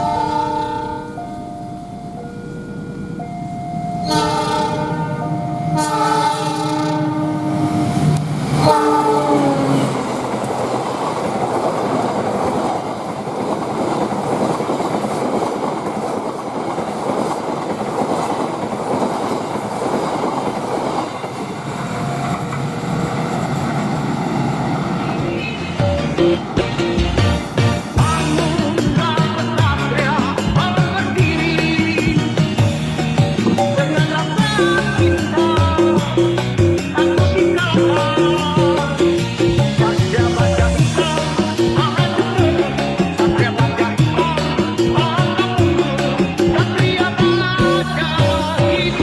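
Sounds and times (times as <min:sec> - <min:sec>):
train horn blasts: 0:00.0 - 0:01.4, 0:04.0 - 0:09.9, 0:25.1 - 0:29.5
train wheels rumbling and clattering: 0:06.1 - 0:49.0.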